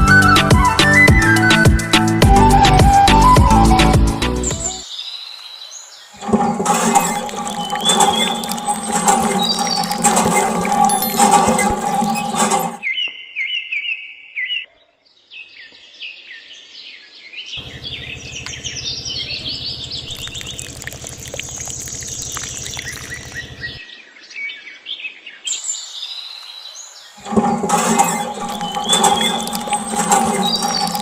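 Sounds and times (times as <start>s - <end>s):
birds chirping: 3.2s - 13.1s, 17.6s - 23.8s, 25.4s - 31.0s
low buzzing hum: 17.6s - 23.8s.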